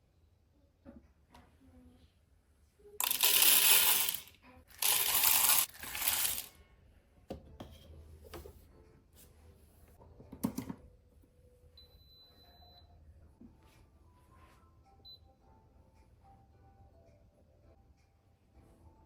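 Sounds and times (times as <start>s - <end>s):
coffee beans pouring into hopper: 3.0s - 6.5s.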